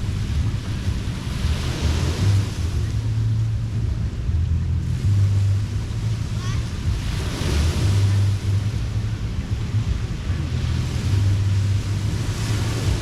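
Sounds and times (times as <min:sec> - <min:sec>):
waves washing on beach: 0:00.0 - 0:13.0
wind rumble on microphone: 0:00.0 - 0:13.0.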